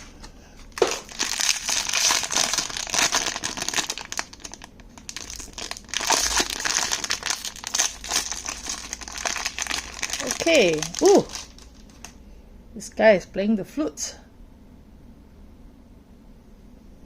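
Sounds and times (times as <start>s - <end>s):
packaging crackling and rustling: 0.7s - 12.2s.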